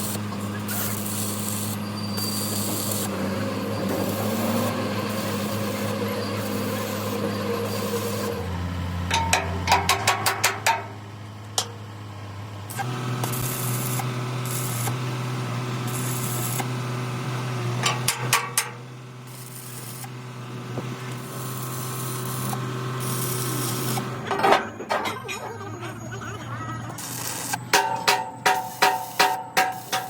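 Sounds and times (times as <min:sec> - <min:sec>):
machine hum: 0:00.0 - 0:14.8.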